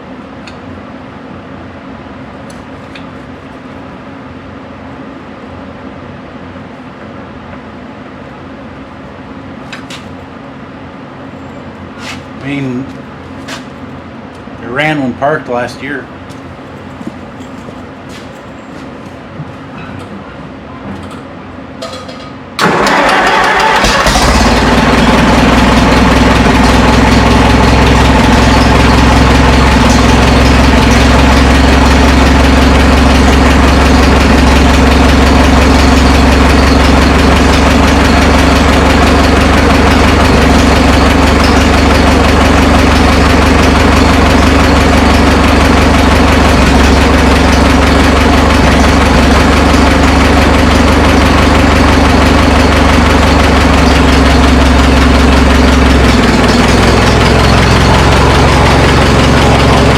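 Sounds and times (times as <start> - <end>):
tractor engine idling: 22.6 - 59.9.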